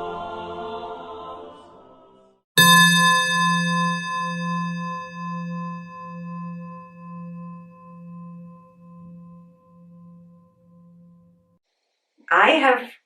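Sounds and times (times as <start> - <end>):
singing bowl ringing: 2.6 - 11.6.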